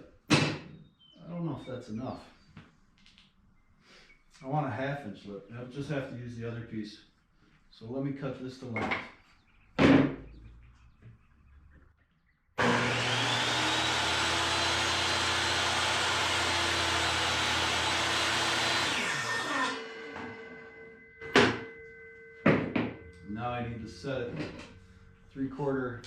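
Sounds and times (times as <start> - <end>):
electric power saw motor: 12.6 - 21.0.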